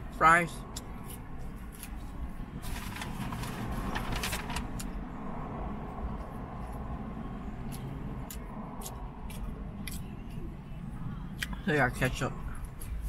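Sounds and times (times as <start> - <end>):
person chewing fries: 7.6 - 10.5.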